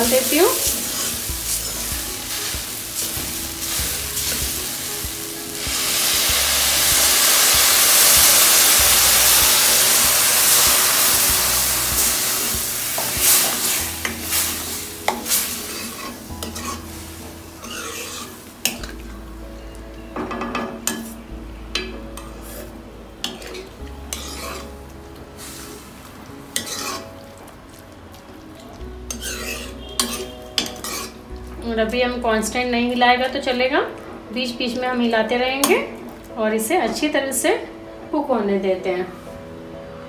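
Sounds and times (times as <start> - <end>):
loud sizzling hiss: 0.0 - 19.0, 23.6 - 27.2
spoon stirring and scraping pan: 0.0 - 19.0, 21.8 - 24.8, 25.4 - 31.3.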